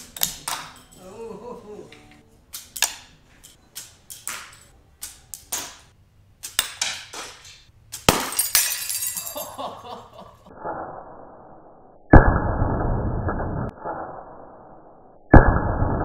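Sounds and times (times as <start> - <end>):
sharp ringing clinks: 8.3 - 9.7.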